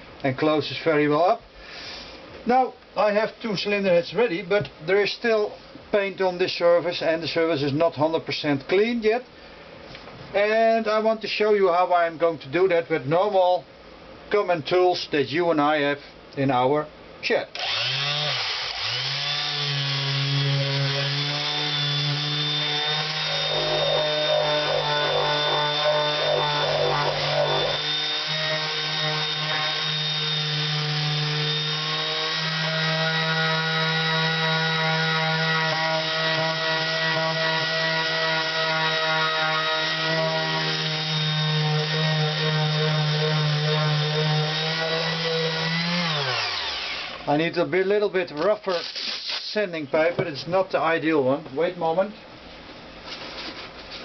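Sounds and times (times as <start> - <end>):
power tool sanding metal: 17.6 - 47.2.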